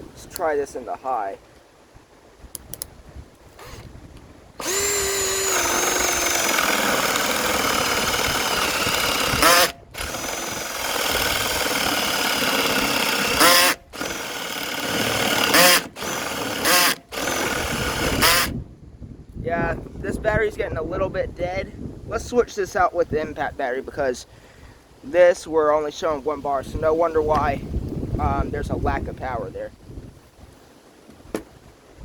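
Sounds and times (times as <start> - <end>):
cordless drill whining: 3.6 - 3.9, 4.6 - 18.6.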